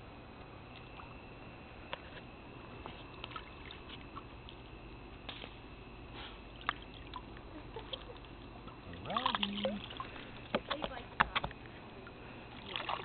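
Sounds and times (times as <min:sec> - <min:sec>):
water drips and laps: 0:02.8 - 0:05.6, 0:06.5 - 0:13.0.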